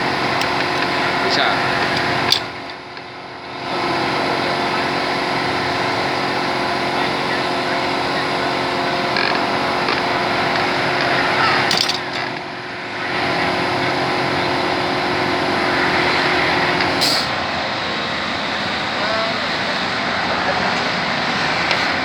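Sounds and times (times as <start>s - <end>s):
workshop machine motor hum: 0.0s - 22.0s
short sharp hisses: 17.0s - 17.3s.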